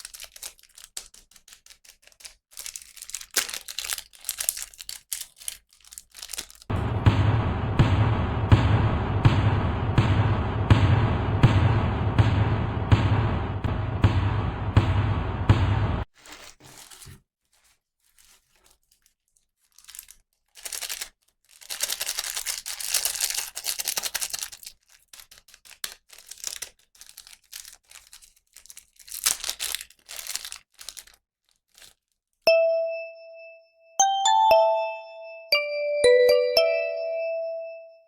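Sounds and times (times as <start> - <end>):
plastic packaging tearing and crinkling: 0.0 - 6.7, 16.1 - 32.4
bell-like chiming notes: 32.5 - 38.0.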